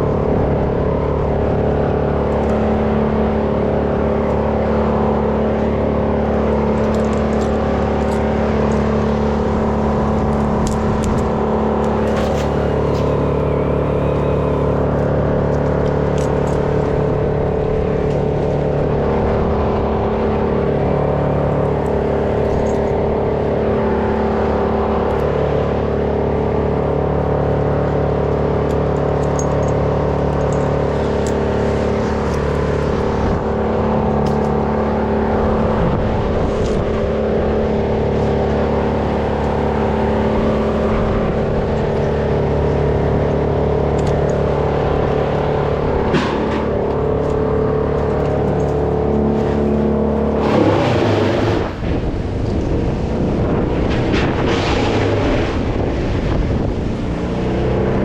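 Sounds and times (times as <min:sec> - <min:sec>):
chainsaw engine running: 0:20.0 - 0:55.2.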